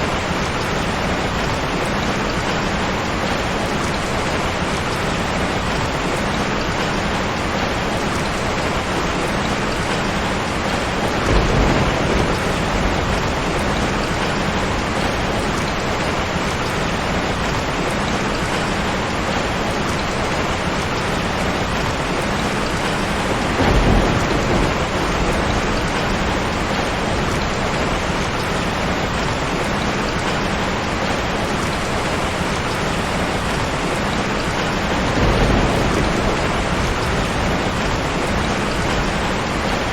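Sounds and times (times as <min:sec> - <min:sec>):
heavy rain falling: 0:00.0 - 0:39.9
thunder rumble: 0:06.6 - 0:18.7, 0:20.0 - 0:31.0, 0:32.1 - 0:39.9.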